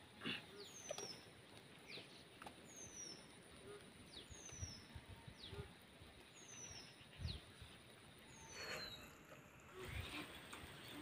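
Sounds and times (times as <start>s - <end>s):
faint high bird calls: 8.2s - 11.0s.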